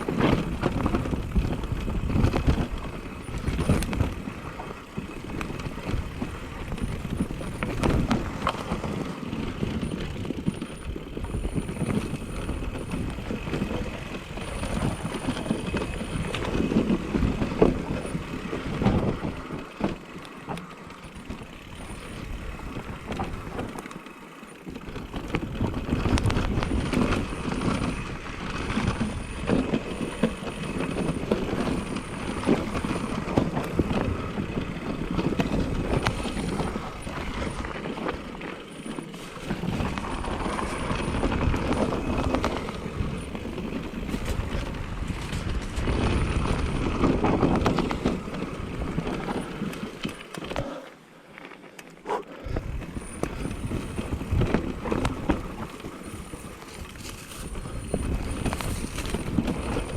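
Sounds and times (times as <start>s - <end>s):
bike chain and frame rattling: 0.0s - 59.9s
tyres rushing over dirt: 0.0s - 59.9s.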